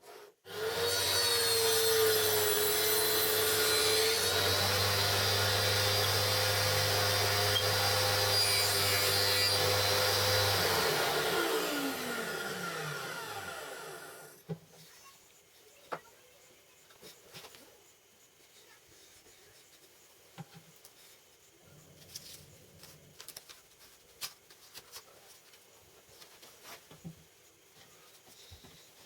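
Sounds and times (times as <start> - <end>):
band saw motor running: 0.5 - 14.3.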